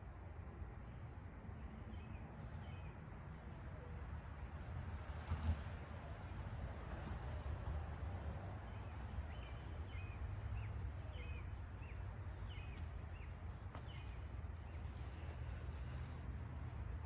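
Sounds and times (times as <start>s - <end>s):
birds chirping: 9.2s - 16.2s.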